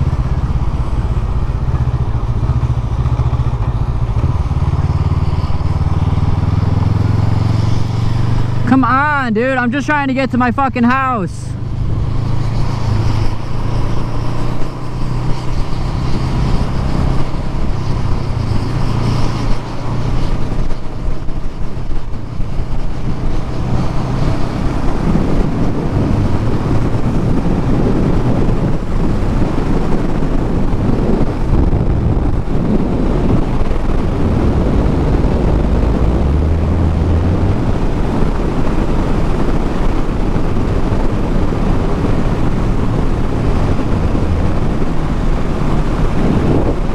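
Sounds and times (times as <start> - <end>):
motorcycle engine running: 0.0 - 10.5, 11.5 - 46.9
wind rush on microphone: 0.0 - 46.9.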